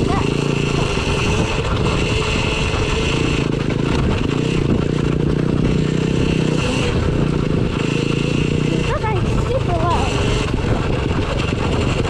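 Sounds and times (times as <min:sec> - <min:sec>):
electric motorbike whine: 0:00.0 - 0:12.0
wind noise: 0:00.0 - 0:12.0.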